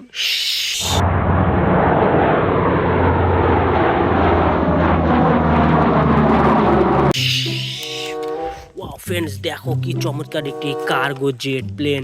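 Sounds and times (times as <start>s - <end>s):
electronic jet engine roar: 0.7s - 8.6s.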